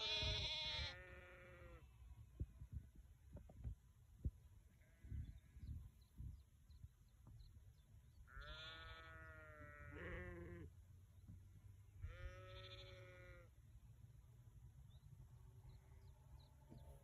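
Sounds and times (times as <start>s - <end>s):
sheep bleating: 0.0s - 1.9s, 8.3s - 10.7s, 12.0s - 13.5s.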